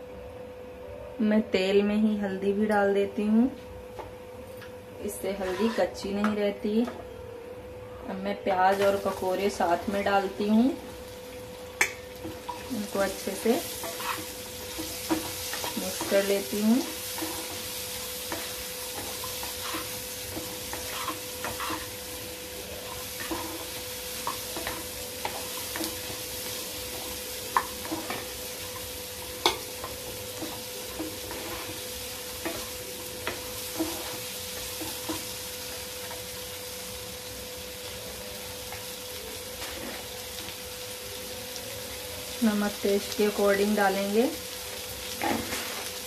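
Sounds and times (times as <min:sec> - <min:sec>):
vegetables sizzling in hot oil: 0:05.1 - 0:07.0, 0:08.3 - 0:46.0
wooden spatula scraping a pan: 0:05.2 - 0:06.0, 0:12.4 - 0:22.0, 0:22.8 - 0:26.2, 0:29.4 - 0:32.7, 0:33.7 - 0:34.2, 0:39.6 - 0:40.2, 0:45.2 - 0:46.0.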